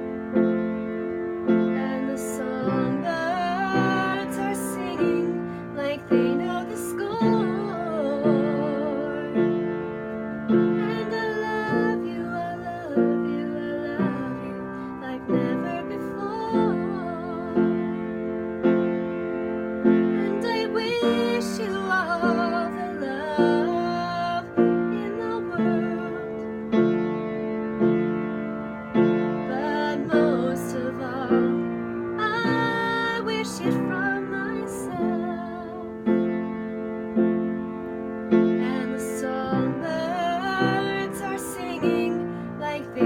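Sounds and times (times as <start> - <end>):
piano chords: 0.0 - 43.0
woman singing ballad: 1.6 - 9.6, 10.6 - 18.1, 20.1 - 26.6, 29.4 - 36.2, 38.6 - 43.0.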